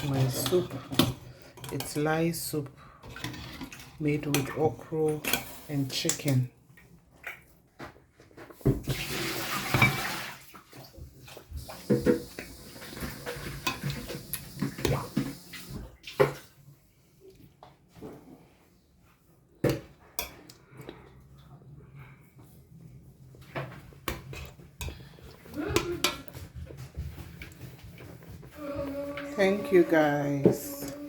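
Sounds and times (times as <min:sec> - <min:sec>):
liquid pouring: 0:08.9 - 0:15.7
dishes and utensils clinking: 0:11.9 - 0:15.4.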